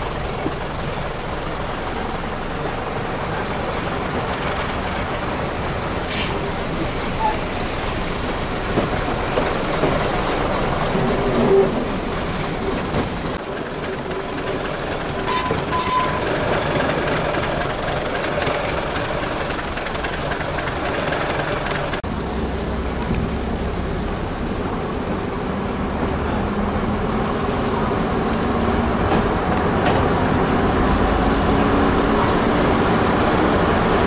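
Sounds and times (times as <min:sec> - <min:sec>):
train wheels rumbling on rails: 0:00.0 - 0:34.0
wind: 0:00.0 - 0:34.0
short high squeaks: 0:07.0 - 0:07.5, 0:15.3 - 0:16.4.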